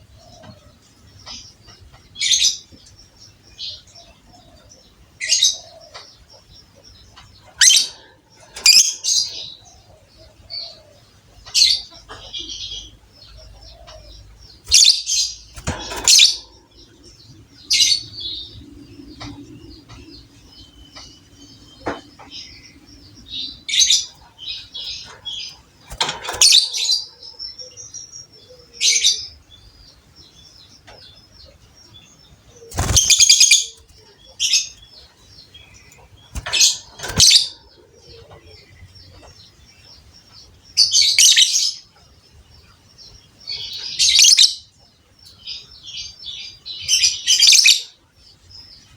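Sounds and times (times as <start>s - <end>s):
soft bird twittering: 5.2s - 41.9s
lovebird chattering calls: 32.6s - 33.8s.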